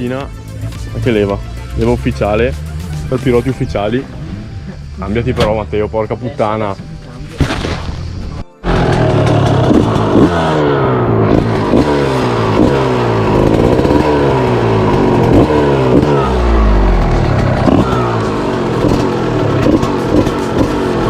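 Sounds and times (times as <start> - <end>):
dirt bike engine revving: 7.5 - 21.0.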